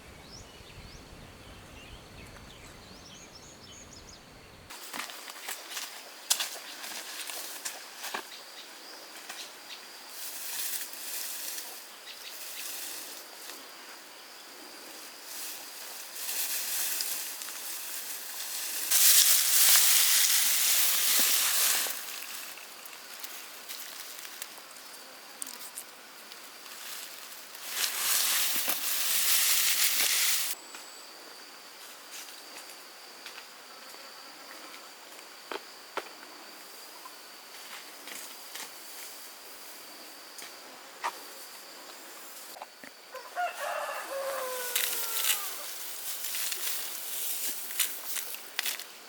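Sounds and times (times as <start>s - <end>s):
leaves and undergrowth rustling: 4.7s - 30.6s, 41.4s - 49.0s.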